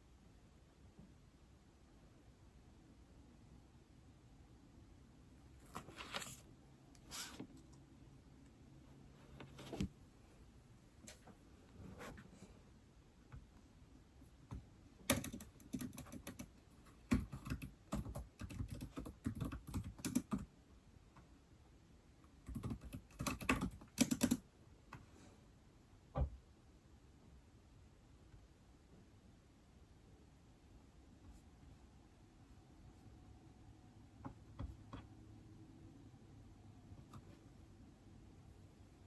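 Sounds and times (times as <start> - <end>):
keyboard typing: 15.0 - 20.5, 22.4 - 24.4.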